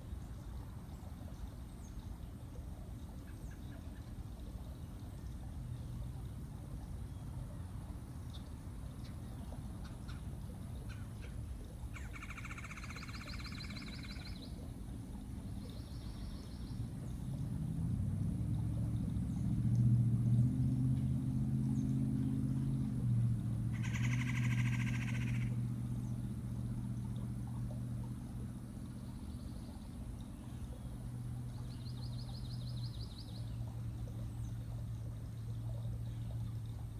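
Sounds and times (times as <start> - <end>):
low engine hum: 0.0 - 36.9
bird trilling: 23.7 - 25.6.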